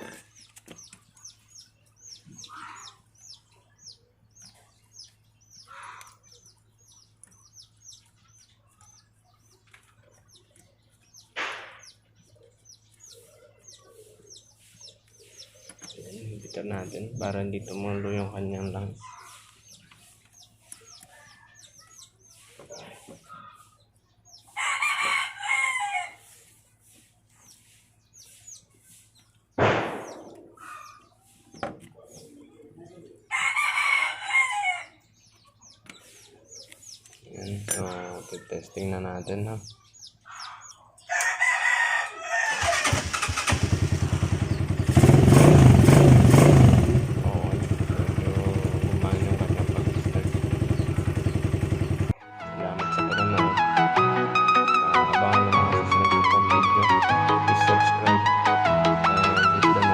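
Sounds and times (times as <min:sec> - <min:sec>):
small birds chirping: 0:00.0 - 0:54.0
loud knock: 0:11.4 - 0:11.9, 0:29.6 - 0:30.6
rooster crowing: 0:24.6 - 0:26.2, 0:33.3 - 0:35.0, 0:41.0 - 0:43.3
motorcycle engine running and revving: 0:42.6 - 0:52.2.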